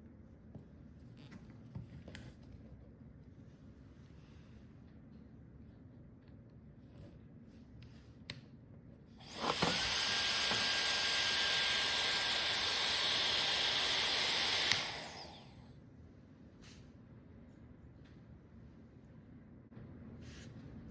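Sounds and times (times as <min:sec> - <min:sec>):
hair dryer blowing: 0:09.2 - 0:15.6
hair dryer switch click: 0:13.1 - 0:15.4.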